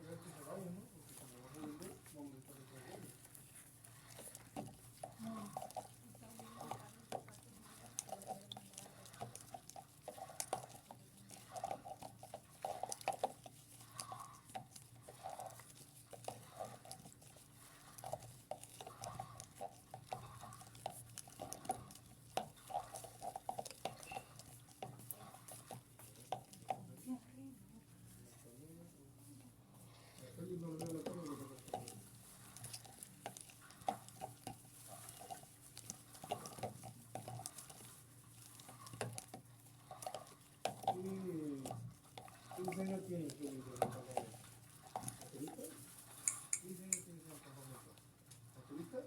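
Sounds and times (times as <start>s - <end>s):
water sloshing in washing machine: 0.0s - 27.2s, 29.6s - 49.0s
washing machine hum: 0.0s - 49.0s.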